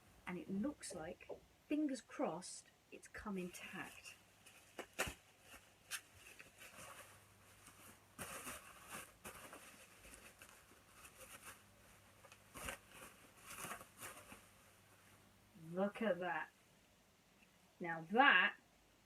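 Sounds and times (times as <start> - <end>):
packaging rustling and crinkling: 3.6 - 14.8.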